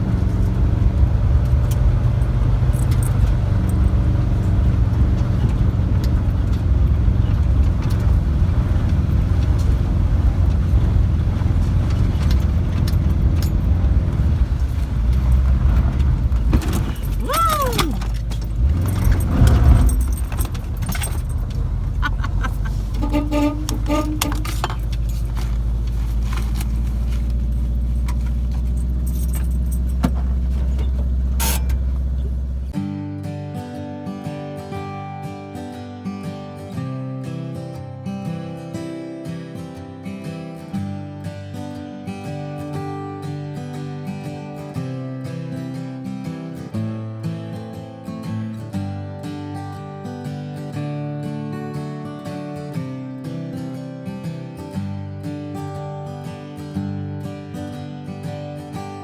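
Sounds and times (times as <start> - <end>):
light rattles: 0.0 - 32.8
van engine rumbling: 0.0 - 32.8
short squeak: 16.6 - 25.7, 30.7 - 32.7.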